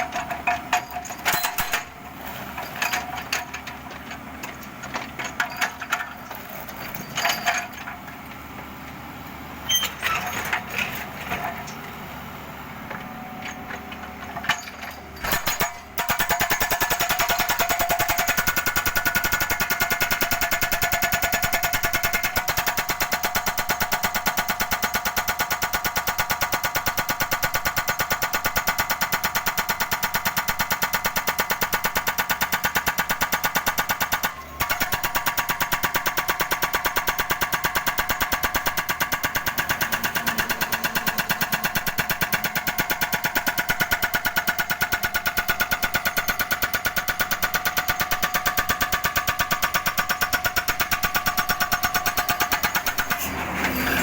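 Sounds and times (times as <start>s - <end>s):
hydraulic breaker hammering pavement: 14.6s - 54.0s
excavator engine running: 31.6s - 54.0s.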